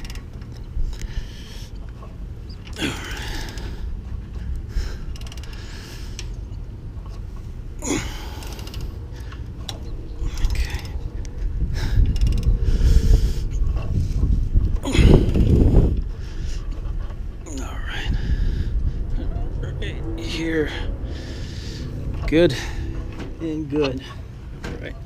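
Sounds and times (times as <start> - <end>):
person breathing heavily: 1.0 - 1.8, 2.8 - 6.3, 7.8 - 9.6, 10.2 - 16.7, 17.5 - 19.2, 20.6 - 23.2
light mechanical clicks: 4.4 - 7.2.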